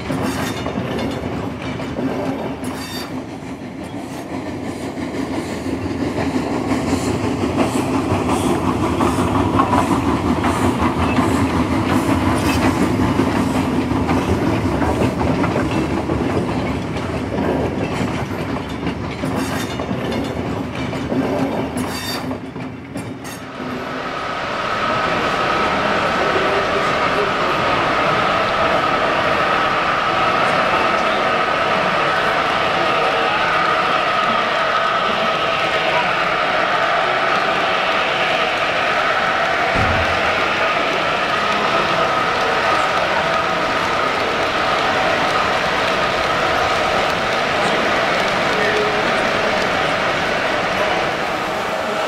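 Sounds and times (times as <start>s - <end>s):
train wheels clattering: 0.0s - 23.6s, 33.1s - 51.5s.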